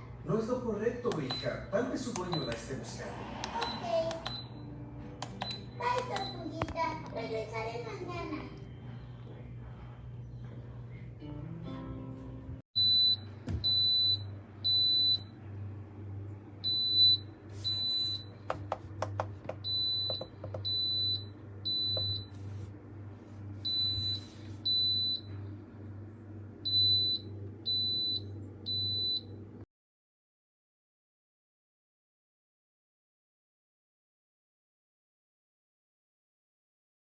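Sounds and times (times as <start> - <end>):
smoke alarm beeping: 1.2 - 2.7, 12.8 - 15.3, 16.6 - 18.4, 19.5 - 22.3, 23.6 - 25.3, 26.7 - 29.3.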